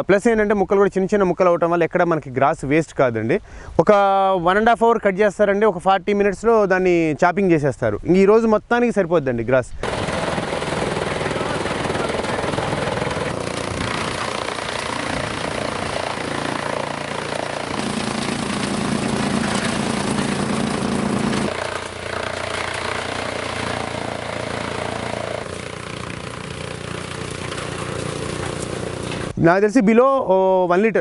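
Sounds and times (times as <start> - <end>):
chaff cutter turning: 9.8 - 29.4
tractor engine running: 9.8 - 29.4.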